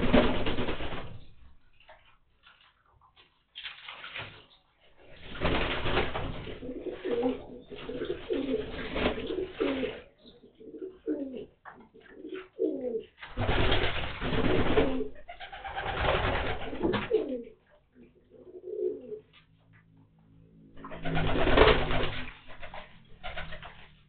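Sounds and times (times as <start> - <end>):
water splashing: 1.9 - 10.1
pigeons cooing: 6.4 - 13.2, 14.5 - 19.3.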